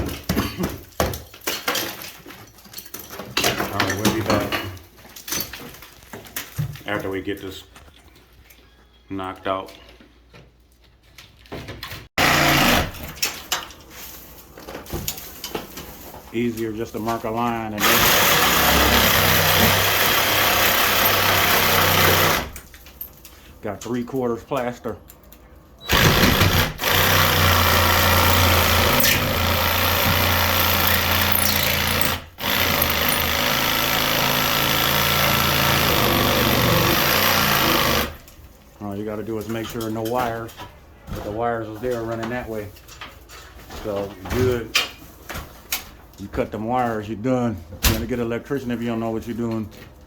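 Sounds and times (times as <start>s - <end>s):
power tool cutting plaster: 12.2s - 13.1s, 17.8s - 22.6s, 25.9s - 38.2s.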